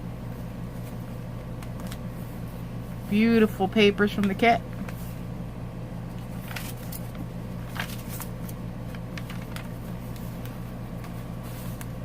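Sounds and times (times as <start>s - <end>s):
steady low hum: 0.0s - 12.0s
paper pages rustling and clicking: 1.6s - 2.1s, 6.2s - 12.0s.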